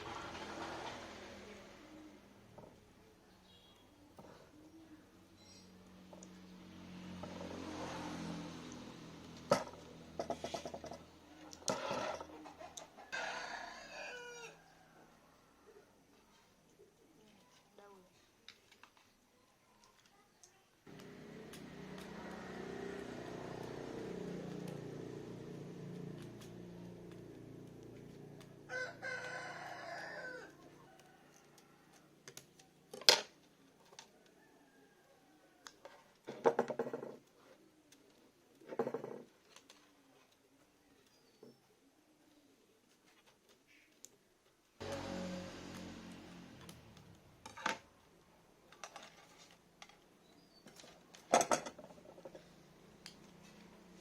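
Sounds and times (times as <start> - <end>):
rooster crowing: 12.8 - 15.3, 28.6 - 32.0.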